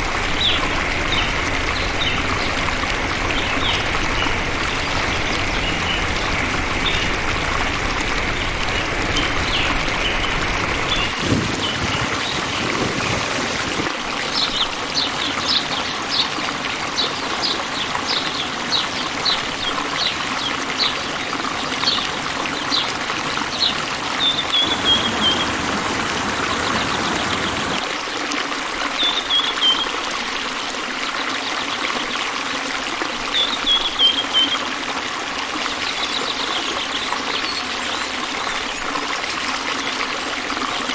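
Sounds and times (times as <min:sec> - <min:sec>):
bird chirping: 0:00.0 - 0:13.9, 0:24.3 - 0:27.8
water trickling: 0:00.0 - 0:13.9, 0:22.5 - 0:30.4.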